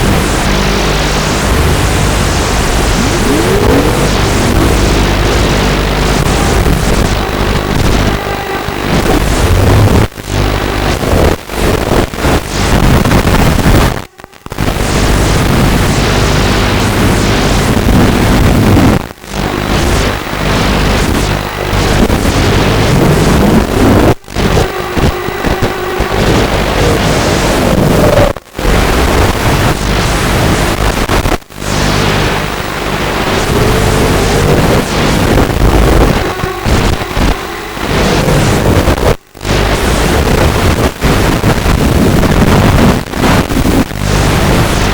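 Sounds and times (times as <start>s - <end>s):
drone motors whining: 0.0s - 11.0s, 19.1s - 30.9s, 31.6s - 41.2s
wind on microphone: 0.0s - 44.9s.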